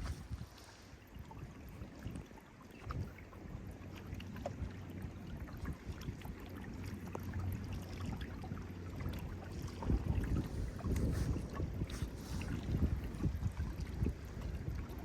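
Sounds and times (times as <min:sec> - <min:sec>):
small clicks and drips: 0:00.0 - 0:15.0
water sounds from canoe: 0:00.0 - 0:15.0
wind rumbling on microphone: 0:00.0 - 0:15.0.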